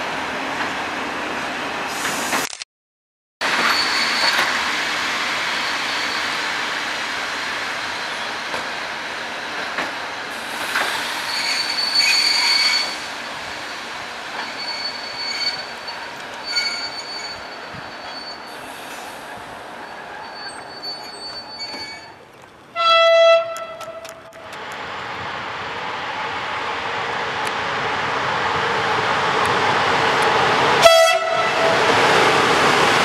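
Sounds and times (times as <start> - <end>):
train rolling past: 3.4 - 33.0
wheels squealing: 11.0 - 13.0, 14.4 - 22.3.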